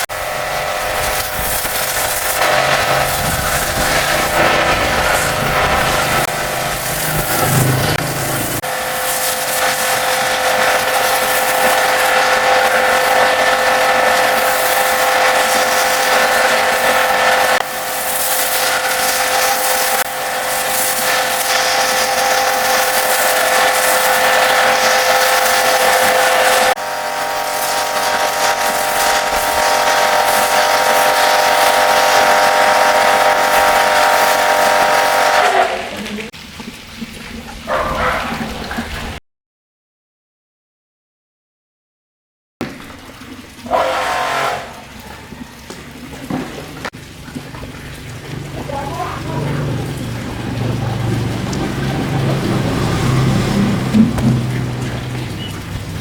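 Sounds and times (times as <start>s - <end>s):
cleaning machine motor whine: 0.0s - 36.3s, 48.9s - 56.0s
loud hiss of spray: 0.8s - 35.4s.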